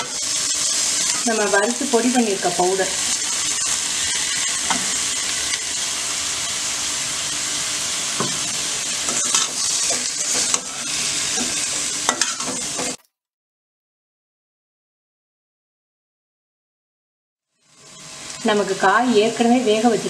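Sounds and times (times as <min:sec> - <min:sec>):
oil sizzling in a pan: 0:00.0 - 0:13.0, 0:17.5 - 0:20.0
spatula scraping and tapping pan: 0:09.0 - 0:10.8, 0:11.4 - 0:13.0.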